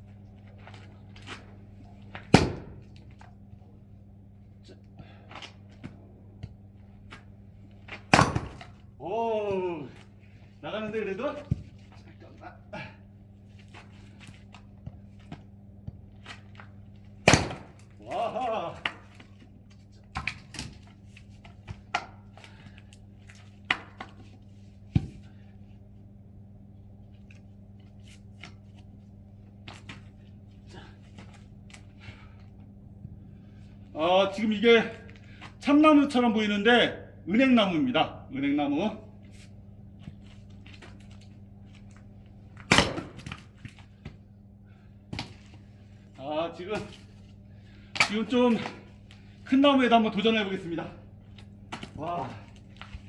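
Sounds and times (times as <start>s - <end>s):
steady low hum: 0.0s - 53.0s
axe splitting wood: 2.1s - 2.8s, 7.9s - 8.8s, 17.2s - 19.1s, 42.6s - 43.4s, 47.9s - 48.8s.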